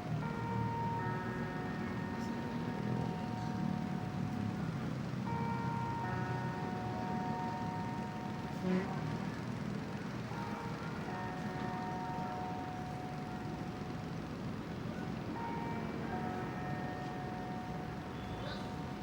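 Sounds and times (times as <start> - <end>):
distant city traffic rumble: 0.0 - 19.0.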